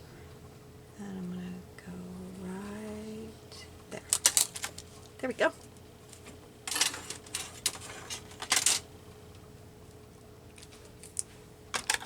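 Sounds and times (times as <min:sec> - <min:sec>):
craft supplies clattering: 0:04.1 - 0:04.8, 0:06.7 - 0:08.9, 0:11.7 - 0:12.0.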